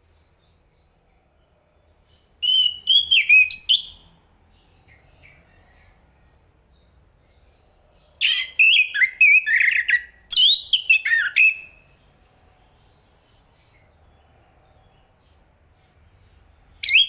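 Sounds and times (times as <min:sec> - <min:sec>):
thrush singing whistled notes: 0:02.4 - 0:04.0, 0:08.2 - 0:11.8.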